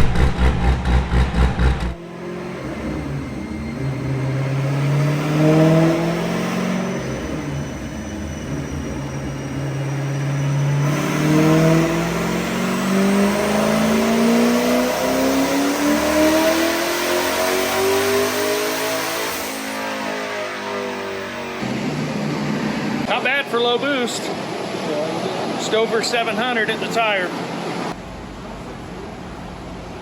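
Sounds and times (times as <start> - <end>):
car engine revving under load: 0.0 - 23.1.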